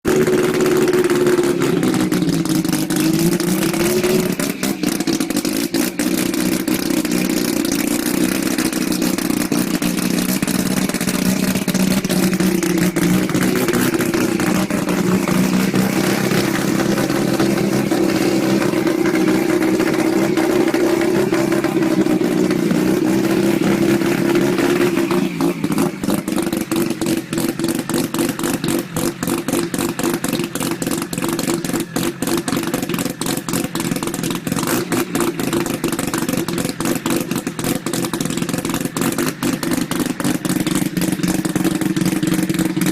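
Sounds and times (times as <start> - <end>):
loud rotary engine running: 0.1 - 27.3.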